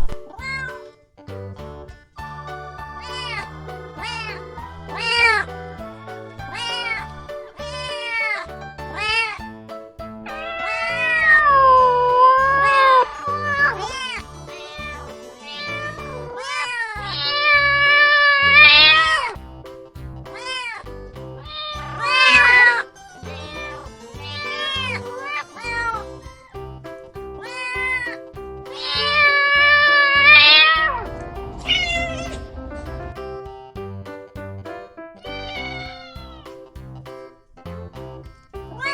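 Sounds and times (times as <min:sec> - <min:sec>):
background music: 0:00.0 - 0:38.9
cats meowing: 0:00.3 - 0:00.8, 0:10.4 - 0:19.3, 0:21.4 - 0:26.5, 0:28.8 - 0:32.9, 0:35.2 - 0:36.5.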